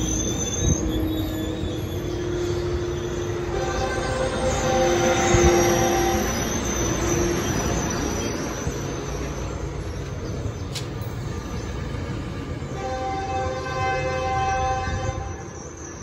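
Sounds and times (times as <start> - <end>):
thin squeal: 0.0 - 10.4
train rumbling on rails: 0.0 - 16.0.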